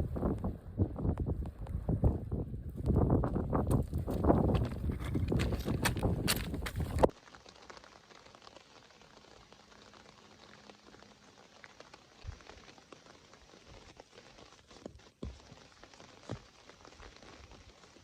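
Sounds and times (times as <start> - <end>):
light rain pattering: 5.4 - 18.0.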